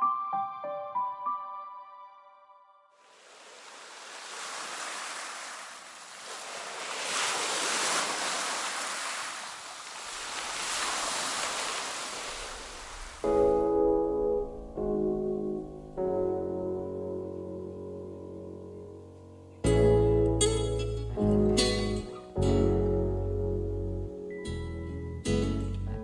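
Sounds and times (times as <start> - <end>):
waves breaking on shore: 3.0 - 13.3.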